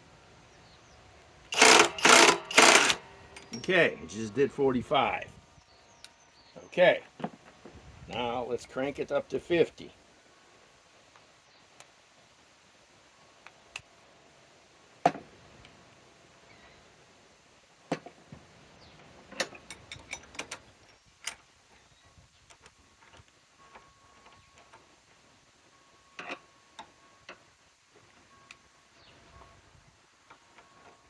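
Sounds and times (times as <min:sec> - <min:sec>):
hand tools clicking and knocking: 0:01.5 - 0:03.7, 0:19.3 - 0:21.4.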